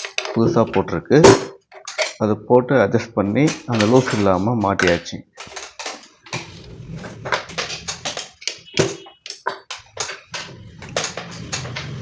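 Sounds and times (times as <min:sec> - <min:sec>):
sewing machine clattering: 0:03.5 - 0:12.0.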